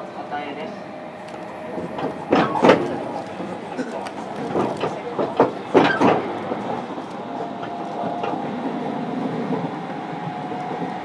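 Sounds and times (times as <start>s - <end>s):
train rumble: 0.0s - 11.0s
wheels knocking over rail joints: 1.8s - 7.0s.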